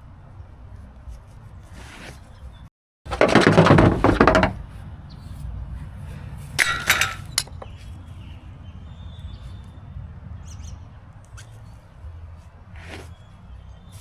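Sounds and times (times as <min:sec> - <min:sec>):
hard objects clattering: 0:03.1 - 0:04.7, 0:06.6 - 0:07.7
clinking rattle with clicks: 0:06.6 - 0:07.7.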